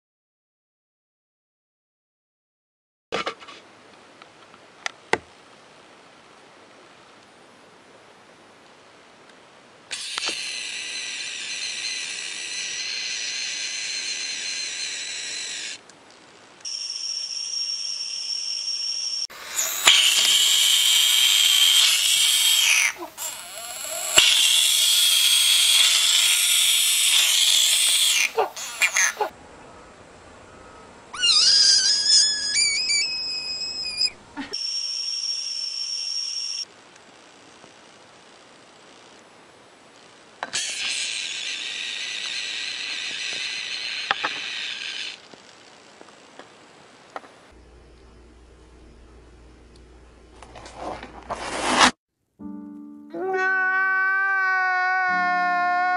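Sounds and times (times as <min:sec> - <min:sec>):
animal whistling hiss: 0:09.9 - 0:15.8, 0:17.7 - 0:29.3, 0:31.2 - 0:36.6.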